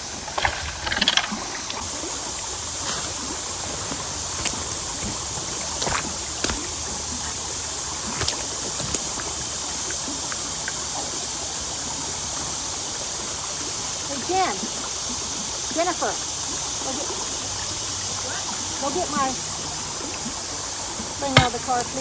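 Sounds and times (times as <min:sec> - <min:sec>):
creek water running: 0:00.0 - 0:22.0
sharp knocks and snaps: 0:03.7 - 0:10.8.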